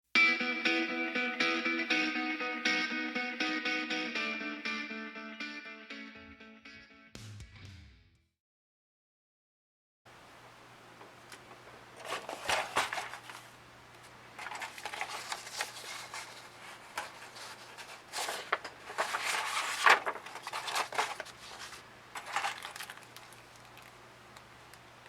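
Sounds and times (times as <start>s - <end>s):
crinkling and rustling: 11.0s - 24.9s.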